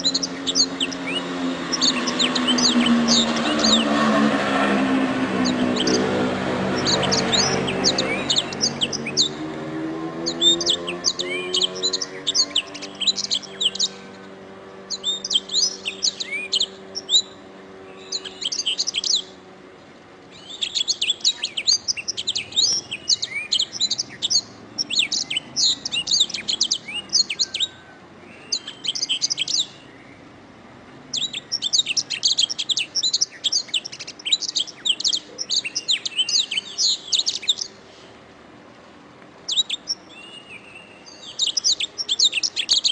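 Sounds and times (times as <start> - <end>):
canary singing trills: 0.0 - 19.5, 20.3 - 30.4, 31.0 - 38.0, 39.4 - 42.9.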